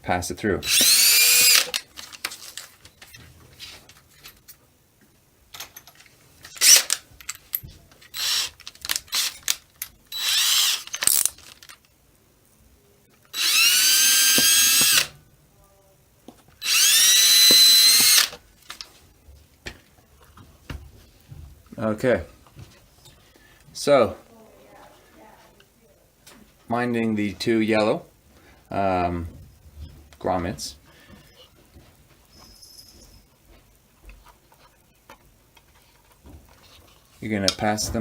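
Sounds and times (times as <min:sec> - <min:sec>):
power drill whining: 0:00.6 - 0:01.8, 0:08.1 - 0:09.4, 0:10.1 - 0:10.9, 0:13.3 - 0:15.1, 0:16.6 - 0:18.4.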